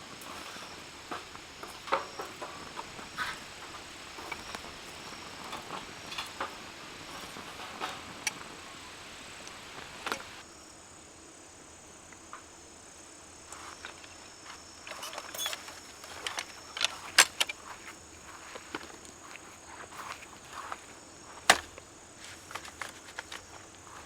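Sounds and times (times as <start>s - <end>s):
high insect chirring: 0.0s - 22.0s
background hiss: 0.0s - 24.0s
sharp clicks and crackles: 0.2s - 10.4s.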